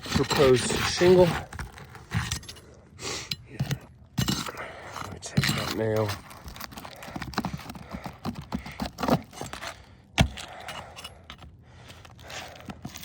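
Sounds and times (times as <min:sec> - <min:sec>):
metal taps and scrapes: 0:00.0 - 0:09.6.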